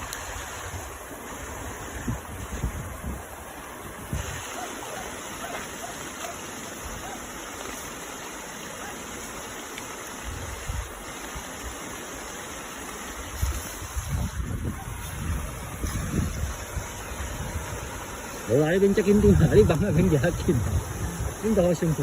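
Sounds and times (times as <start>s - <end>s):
wind buffeting microphone: 0.0s - 4.6s, 10.2s - 11.0s, 13.2s - 22.0s
rushing water: 0.0s - 22.0s.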